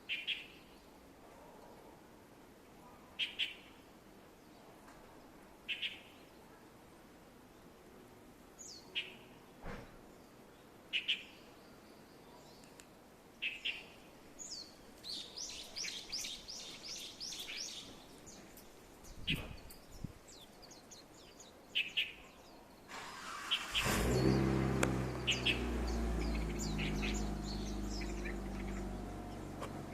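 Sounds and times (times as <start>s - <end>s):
birds chirping: 13.4s - 29.9s
vehicle engine hum: 23.0s - 29.9s.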